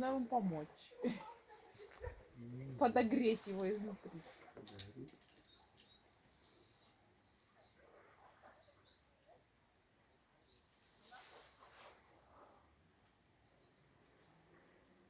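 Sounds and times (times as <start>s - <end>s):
faint bird chirps: 3.7s - 15.0s
faint rustle: 10.6s - 13.2s.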